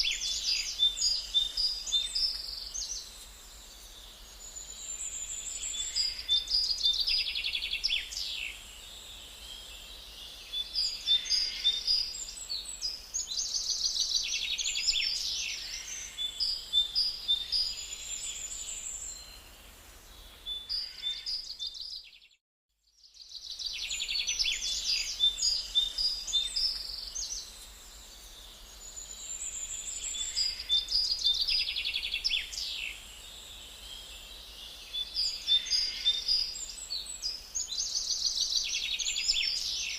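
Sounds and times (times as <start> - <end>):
songbirds trilling and chirping: 0.0 - 39.9.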